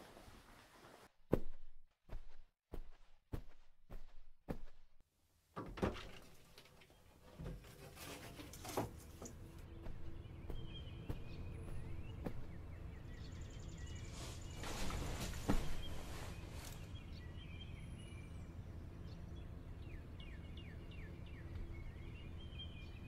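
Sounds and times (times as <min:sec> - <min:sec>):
faint bird chirping: 0:09.4 - 0:23.0.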